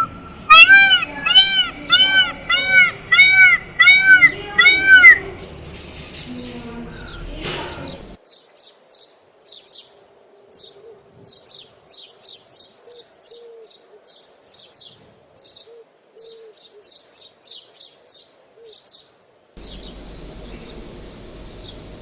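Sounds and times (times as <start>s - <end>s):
birds chirping: 0.0s - 8.2s, 19.6s - 22.0s
faint low bird calls: 0.0s - 8.2s.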